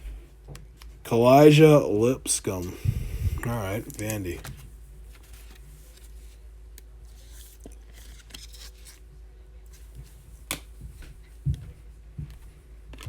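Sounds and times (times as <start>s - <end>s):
low steady hum: 0.0s - 13.0s
trading cards rustling and clicking: 3.4s - 9.0s.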